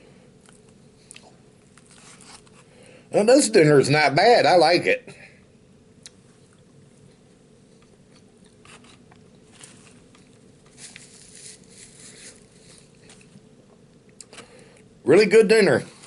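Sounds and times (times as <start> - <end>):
low room hum: 0.0 - 16.0
small eating clicks and rustles: 0.1 - 2.9, 6.0 - 15.0
person chewing food: 0.4 - 2.7, 6.0 - 14.9.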